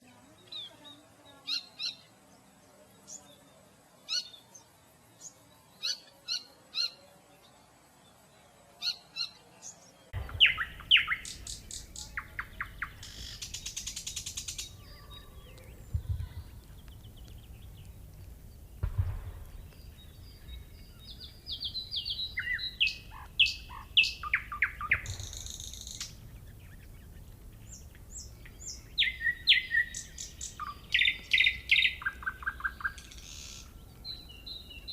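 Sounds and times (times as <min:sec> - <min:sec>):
songbirds chirping and trilling: 0:00.0 - 0:34.9.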